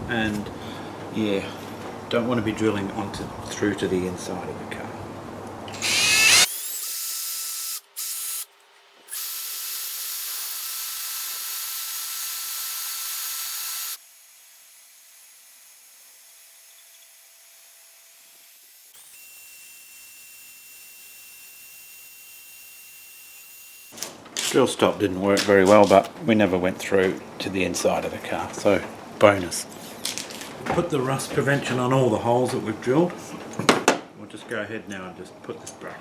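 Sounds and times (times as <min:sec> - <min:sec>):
power drill boring sheet metal: 0:05.8 - 0:08.5, 0:09.1 - 0:24.0.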